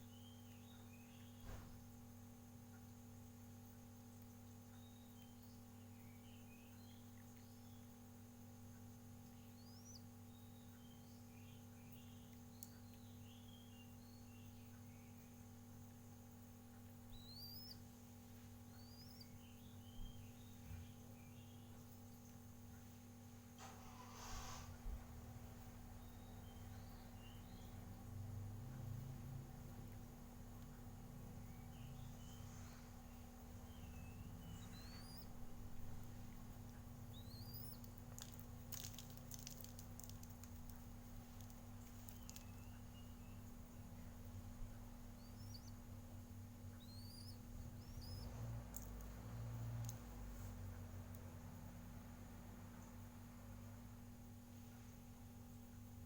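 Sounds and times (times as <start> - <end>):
small birds chirping: 0.0 - 56.0
steady low hum: 0.0 - 56.0
light clicks and taps: 12.3 - 13.1, 35.8 - 43.0, 47.8 - 51.4
rising bird whistles: 17.1 - 17.8, 33.7 - 36.0, 37.0 - 37.9, 45.1 - 45.8, 46.7 - 48.4.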